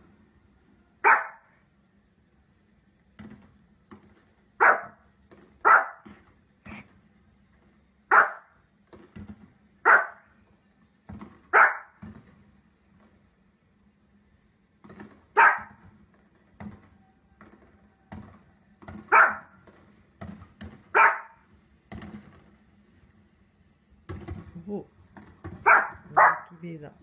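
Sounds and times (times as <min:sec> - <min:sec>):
dog barking: 0:01.0 - 0:01.6, 0:04.6 - 0:05.0, 0:05.6 - 0:06.1, 0:08.1 - 0:08.6, 0:09.8 - 0:10.3, 0:11.5 - 0:12.0, 0:15.4 - 0:15.8, 0:19.1 - 0:19.6, 0:20.9 - 0:21.4, 0:25.6 - 0:26.6.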